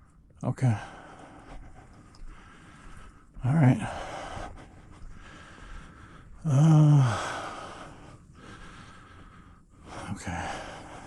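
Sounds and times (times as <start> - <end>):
man breathing hard: 0.0 - 11.0
man sighing: 6.4 - 7.4.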